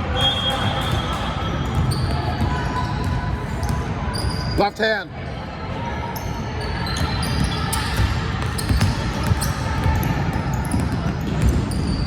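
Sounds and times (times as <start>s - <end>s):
crowd and court noise: 0.0s - 12.0s
basketball bouncing on gym floor: 7.4s - 12.0s.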